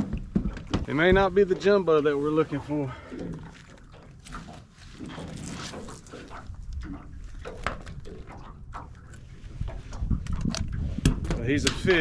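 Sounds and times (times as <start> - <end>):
handling knocks and rustles: 0.0 - 1.8
wind buffeting microphone: 0.0 - 2.0, 6.2 - 12.0.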